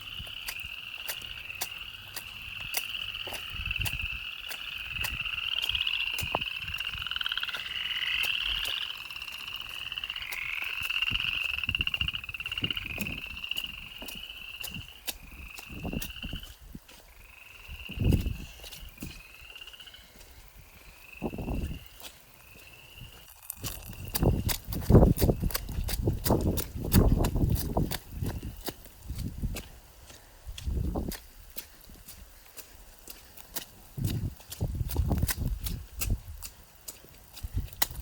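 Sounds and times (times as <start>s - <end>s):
frogs calling in trills: 0.0s - 30.2s
low thumps and clicks: 23.6s - 28.4s.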